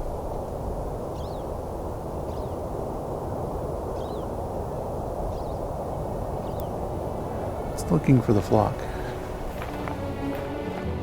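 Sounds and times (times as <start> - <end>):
low rushing background: 0.0 - 11.0
bird flight calls: 1.1 - 2.7, 3.8 - 10.0.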